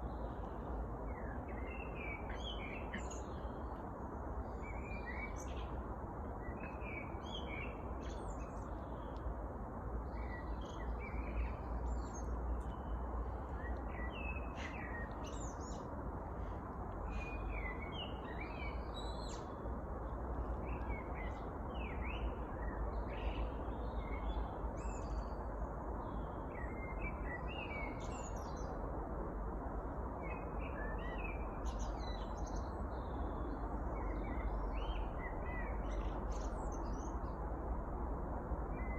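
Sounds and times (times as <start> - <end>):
low background noise: 0.0 - 38.9.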